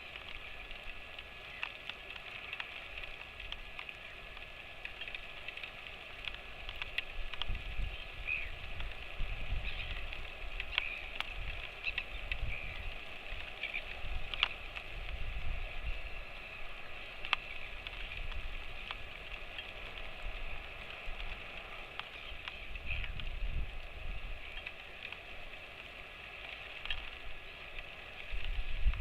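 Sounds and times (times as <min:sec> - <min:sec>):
raindrops ticking on surfaces: 0:00.0 - 0:29.0
steady rain: 0:00.0 - 0:29.0.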